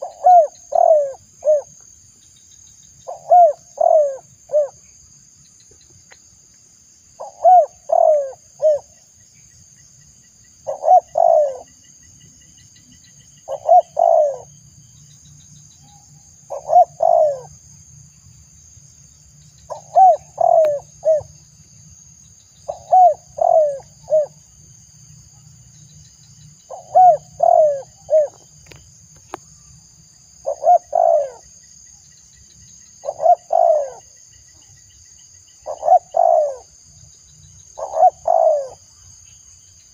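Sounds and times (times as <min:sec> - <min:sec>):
dove cooing: 0:00.0 - 0:01.7, 0:03.1 - 0:04.8, 0:07.2 - 0:08.9, 0:10.6 - 0:11.8, 0:13.4 - 0:14.5, 0:16.5 - 0:17.5, 0:19.7 - 0:21.4, 0:22.7 - 0:24.4, 0:26.7 - 0:28.4, 0:30.4 - 0:31.4, 0:33.0 - 0:34.1, 0:35.6 - 0:36.8, 0:37.8 - 0:38.8.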